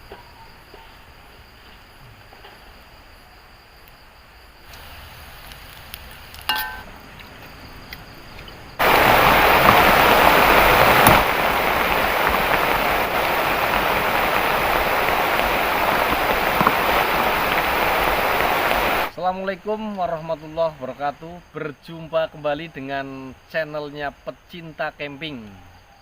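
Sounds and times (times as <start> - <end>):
forest ambience: 0.0 - 26.0
heavy rain pouring: 4.7 - 6.5, 8.8 - 19.1.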